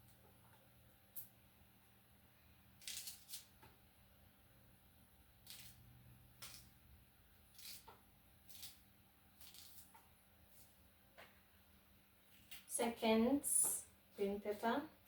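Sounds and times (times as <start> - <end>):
ticks and scrapes of onions: 2.8 - 3.6, 5.4 - 6.8, 7.5 - 10.7.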